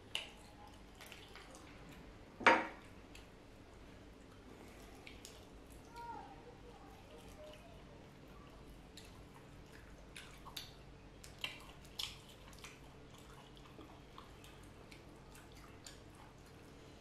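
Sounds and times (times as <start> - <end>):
lip smacks and chewing clicks: 0.0 - 2.1, 2.8 - 6.0, 8.6 - 16.8
low steady hum: 0.0 - 17.0.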